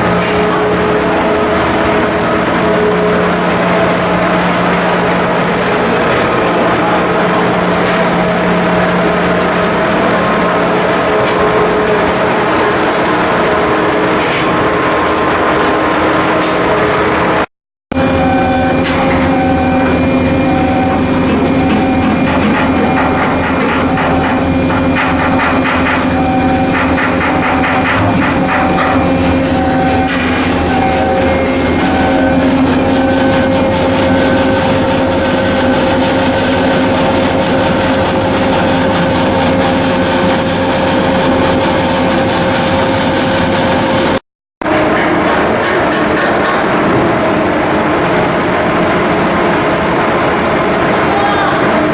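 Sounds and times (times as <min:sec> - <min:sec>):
heavy machinery humming: 0:00.0 - 0:51.9
electronic warning beep: 0:17.9 - 0:39.6.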